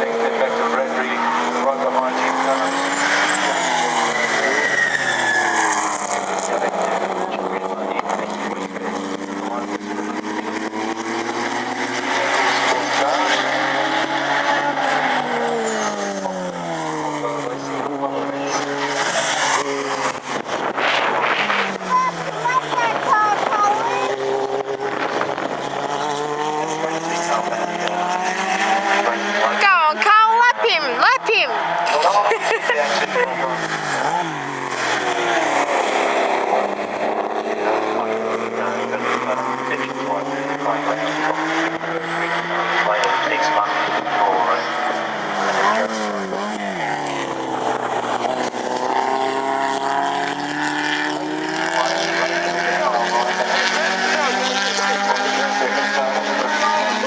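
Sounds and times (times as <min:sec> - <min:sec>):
racing car engines: 0:00.0 - 0:57.0.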